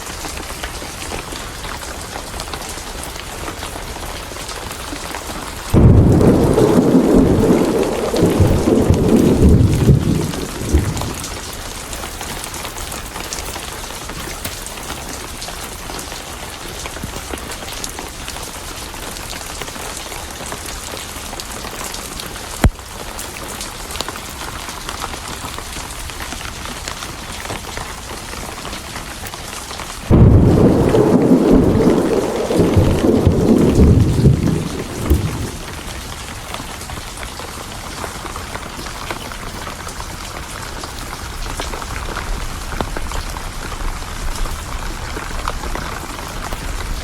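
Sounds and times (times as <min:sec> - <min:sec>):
rain hiss: 0:00.0 - 0:47.0
thunder rumble: 0:05.7 - 0:11.6, 0:30.1 - 0:37.1.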